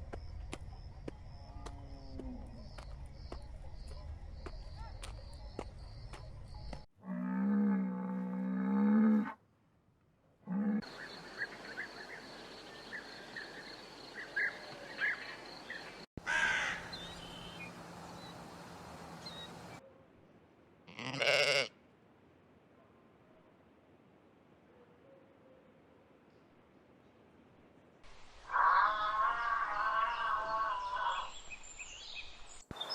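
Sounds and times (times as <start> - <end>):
bird chirps: 16.7 - 19.8.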